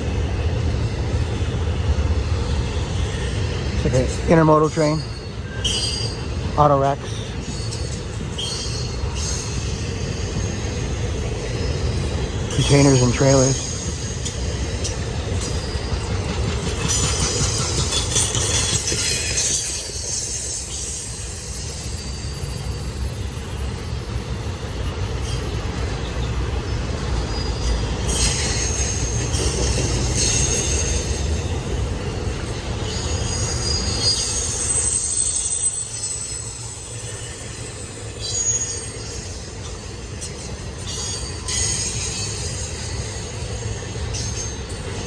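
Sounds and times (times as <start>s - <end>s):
train wheels rumbling on rail: 0.0s - 45.0s
high-pitched wheel squeal: 7.5s - 12.0s, 32.8s - 44.7s.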